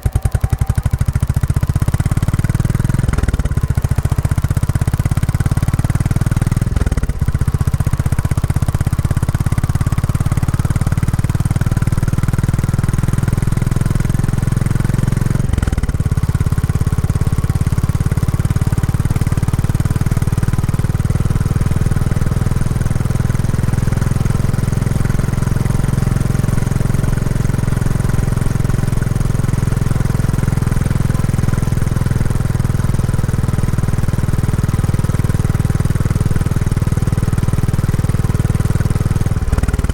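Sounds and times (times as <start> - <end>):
motorcycle engine thumping: 0.0 - 10.9.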